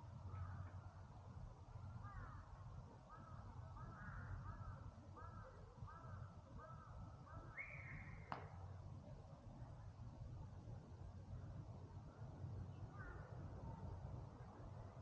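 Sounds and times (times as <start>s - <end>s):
bird calling: 7.3s - 8.4s.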